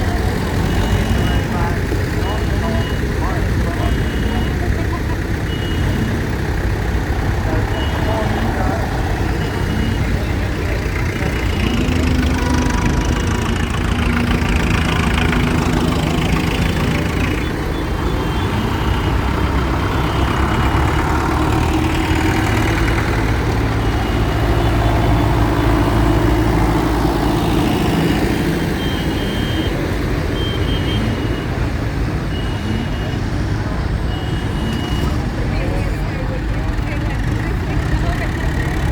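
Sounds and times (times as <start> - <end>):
tractor and lorry engines passing: 0.0 - 38.9
short high beeps: 7.5 - 10.4, 34.0 - 35.2.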